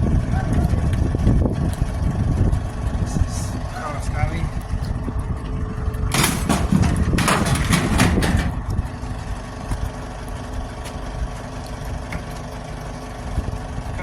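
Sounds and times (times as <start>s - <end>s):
truck engine rumbling: 0.0s - 14.0s
clattering knocks: 6.1s - 8.7s.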